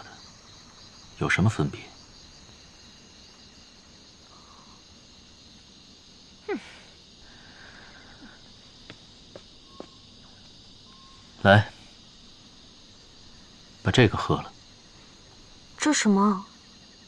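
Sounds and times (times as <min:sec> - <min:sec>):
crickets chirping: 0:00.0 - 0:17.0
faint ticks: 0:08.2 - 0:10.6.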